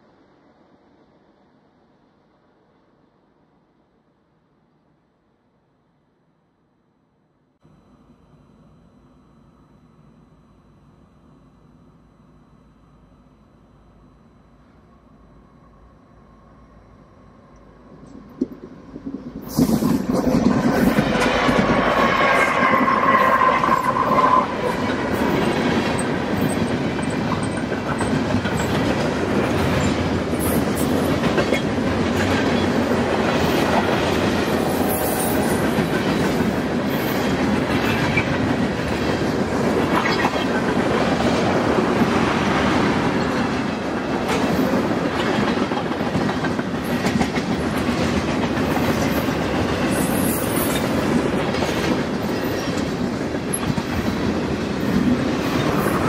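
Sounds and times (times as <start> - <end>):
freight train wheels rumbling: 17.2 - 56.0
wheels clickety-clack: 24.8 - 34.6, 43.1 - 56.0.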